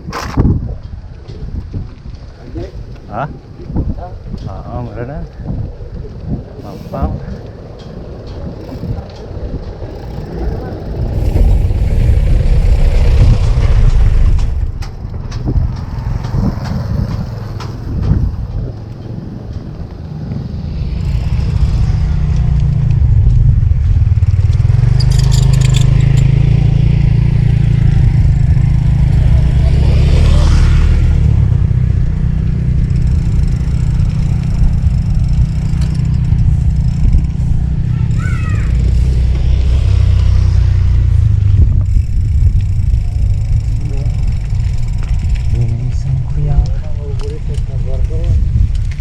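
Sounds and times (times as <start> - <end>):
wind buffeting microphone: 0.0 - 49.0
brief clatter: 24.5 - 26.4.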